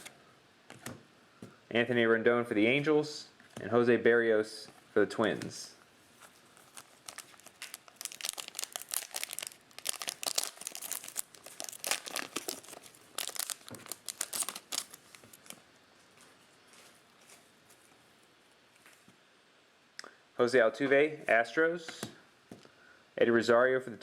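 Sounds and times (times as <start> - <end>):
foil wrapper tearing and crinkling: 6.5 - 15.6.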